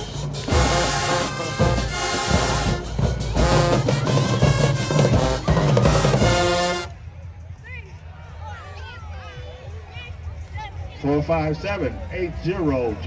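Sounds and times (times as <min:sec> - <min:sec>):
steady drum beat: 0:00.0 - 0:06.9
brass holding notes: 0:00.0 - 0:07.0.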